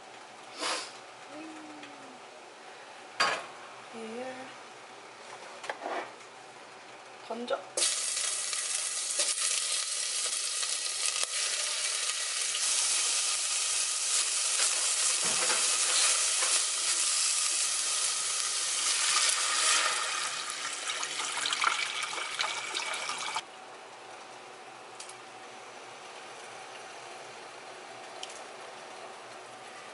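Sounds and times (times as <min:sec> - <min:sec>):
meat sizzling in a pot: 0:07.8 - 0:23.4
water pouring into pot: 0:18.8 - 0:23.4.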